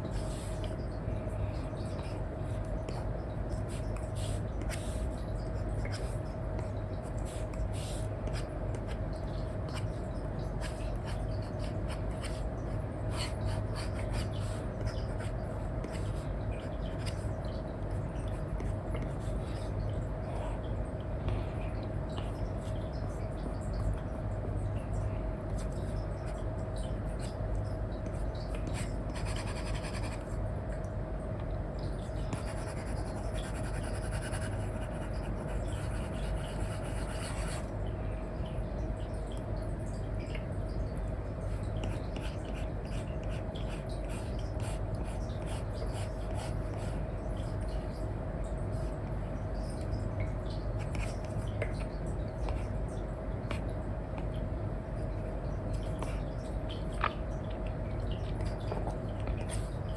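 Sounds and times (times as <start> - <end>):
low background hum: 0.0 - 59.9
stylus scratching and tapping on screen: 28.0 - 30.3.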